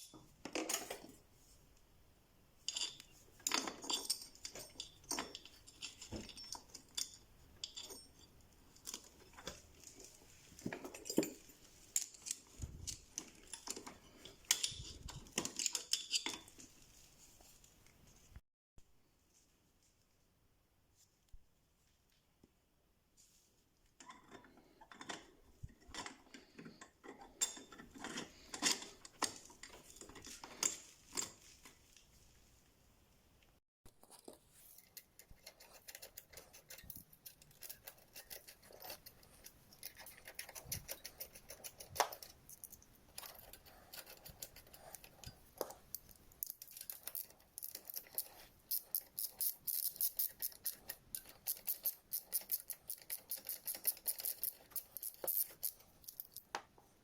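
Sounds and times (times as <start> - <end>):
metal tools and parts clinking: 0.0 - 1.2, 2.6 - 16.7, 24.0 - 31.7, 34.6 - 56.6.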